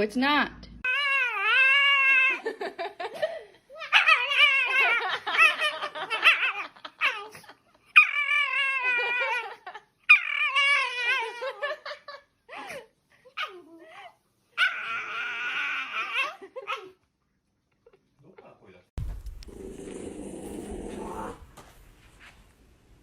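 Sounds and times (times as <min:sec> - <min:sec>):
dog whining: 0:00.8 - 0:02.5, 0:03.8 - 0:11.6, 0:13.4 - 0:17.0.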